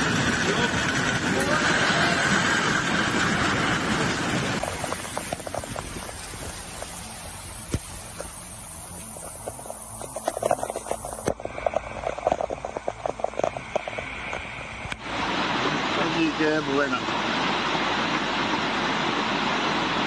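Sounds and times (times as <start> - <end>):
noisy hiss: 2.5 - 20.0.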